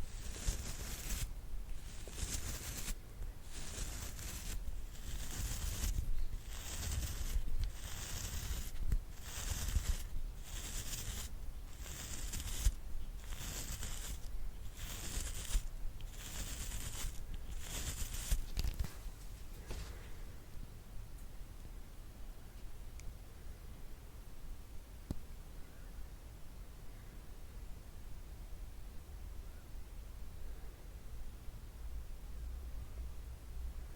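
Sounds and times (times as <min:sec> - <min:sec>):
brush bristles swishing: 0:00.0 - 0:19.3.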